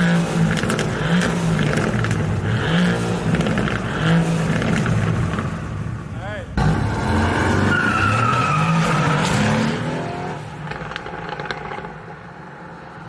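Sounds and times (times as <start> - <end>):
car engine revving hard: 0.0 - 5.8, 6.6 - 12.0
tyres squealing: 6.6 - 9.4.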